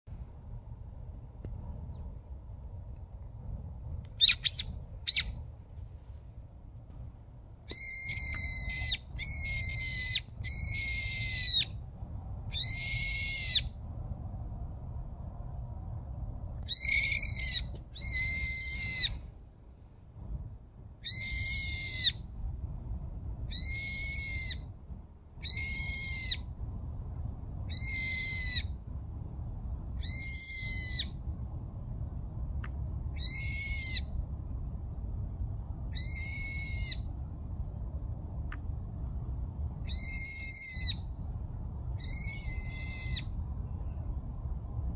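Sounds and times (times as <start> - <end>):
bird calling high level calls: 4.2 - 5.4, 7.7 - 11.7, 12.5 - 13.7, 16.7 - 19.2, 25.4 - 26.5, 33.2 - 34.1, 35.9 - 37.1, 39.8 - 41.1, 42.0 - 43.4.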